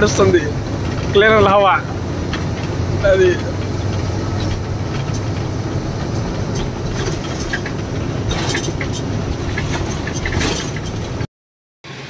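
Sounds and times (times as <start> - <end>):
cab rattles and clicks: 0.0 - 11.3
truck engine and road drone: 0.0 - 12.0.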